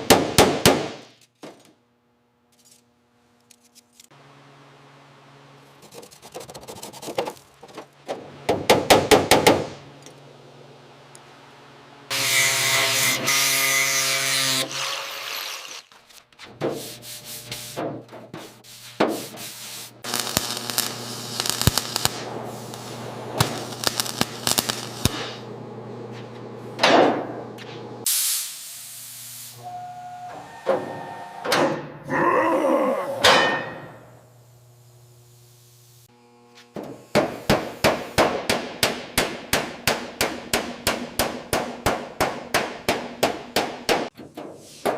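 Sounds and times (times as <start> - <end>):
steady motor hum: 20.1 - 28.0, 34.1 - 37.9.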